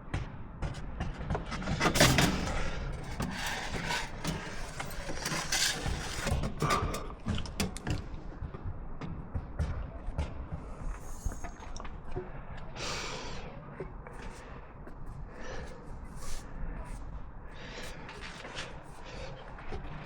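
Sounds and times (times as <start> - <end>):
tools knocking and clattering: 0.7 - 8.5
scraping or rustling: 1.6 - 7.1.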